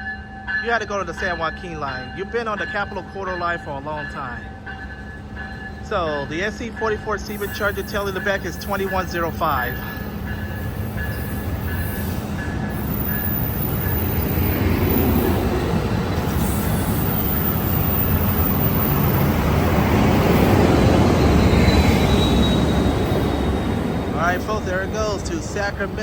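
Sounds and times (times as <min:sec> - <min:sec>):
high ringing tone: 0:00.0 - 0:15.2, 0:21.2 - 0:25.3
train engine and wheels rumbling: 0:00.0 - 0:26.0.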